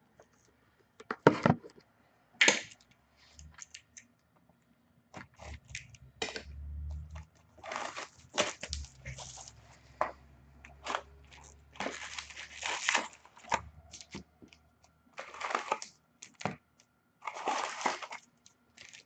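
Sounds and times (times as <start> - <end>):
cardboard and plastic crinkling: 5.2 - 14.6, 15.2 - 16.6, 17.2 - 19.0.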